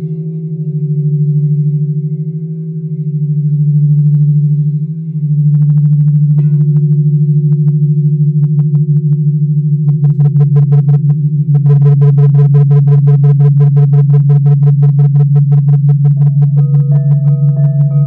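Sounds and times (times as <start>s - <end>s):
singing bowls ringing: 0.0s - 5.5s.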